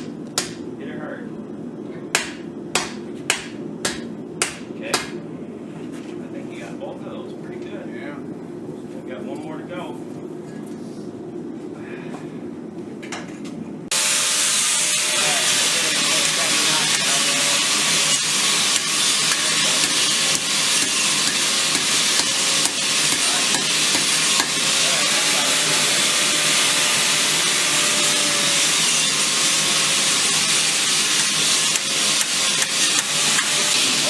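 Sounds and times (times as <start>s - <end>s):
loud steady hiss: 13.9s - 34.0s.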